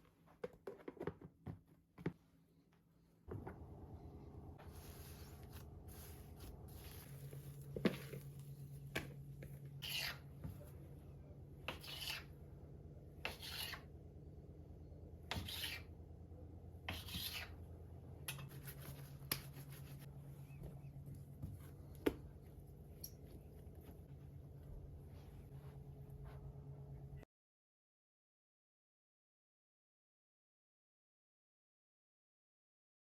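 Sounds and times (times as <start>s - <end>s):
faint low hum: 2.5s - 13.5s, 14.1s - 27.3s.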